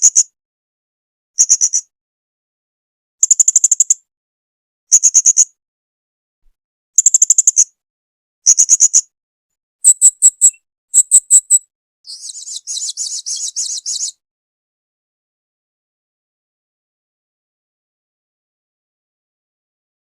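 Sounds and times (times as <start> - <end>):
buzzy bird twittering: 1.4 - 1.8, 3.2 - 4.0, 4.9 - 5.5, 7.0 - 7.7, 8.4 - 9.1, 9.8 - 14.2
parrot shrill calls: 9.8 - 14.1.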